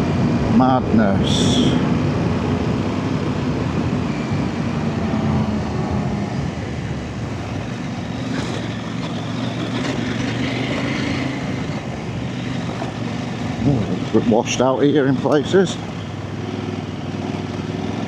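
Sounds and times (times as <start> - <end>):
motorcycle engine running: 2.0 - 18.0.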